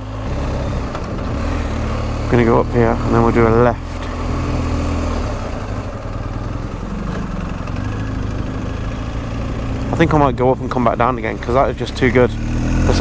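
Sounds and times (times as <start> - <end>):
rushing wind: 0.0 - 10.4
motorcycle engine running: 0.0 - 13.0.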